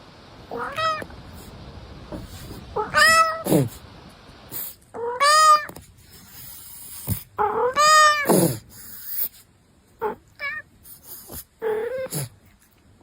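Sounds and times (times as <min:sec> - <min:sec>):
cat meowing: 0:00.5 - 0:01.1, 0:02.1 - 0:03.8, 0:05.0 - 0:05.8, 0:07.4 - 0:08.6, 0:10.0 - 0:10.7.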